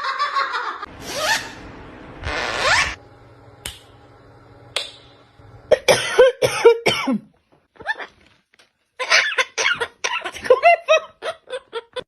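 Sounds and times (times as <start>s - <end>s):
parrot calling: 1.0s - 1.6s.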